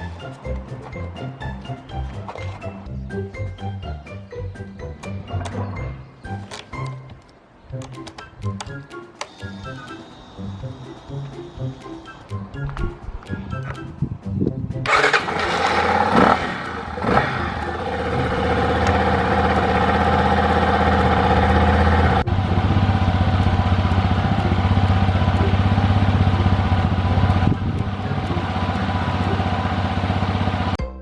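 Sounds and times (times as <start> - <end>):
motorcycle engine blipping and idling: 14.9 - 30.8.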